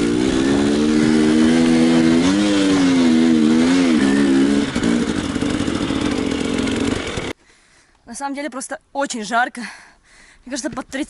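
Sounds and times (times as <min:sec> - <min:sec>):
motorcycle engine: 0:00.0 - 0:07.4.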